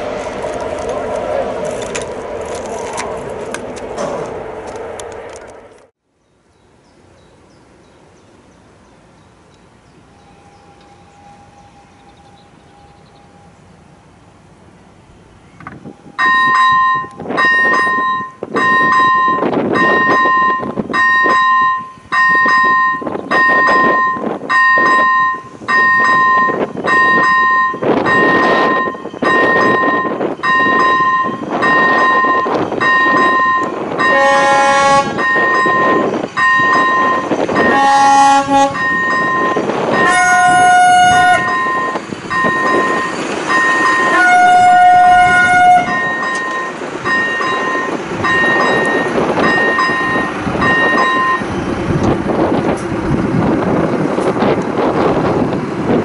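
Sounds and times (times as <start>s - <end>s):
pulsing signal tone: 16.1s - 51.5s
horn-like chord: 34.0s - 35.2s, 37.6s - 39.2s.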